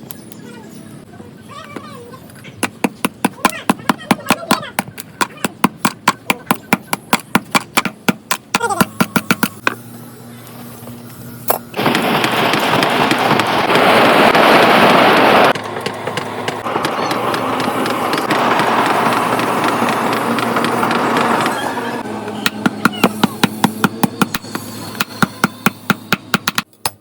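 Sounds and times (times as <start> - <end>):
power tool grinding steel: 16.2 - 25.5.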